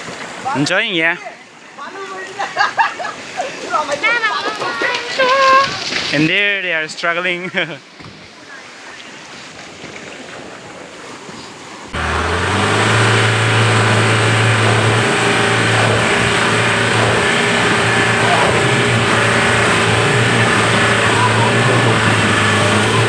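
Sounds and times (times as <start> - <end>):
vehicle engine under load: 11.9 - 23.0.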